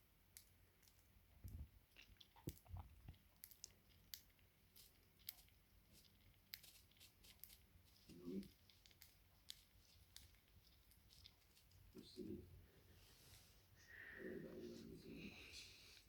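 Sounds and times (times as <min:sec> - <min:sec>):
bird beak pecking and husking seed: 0:00.3 - 0:12.4.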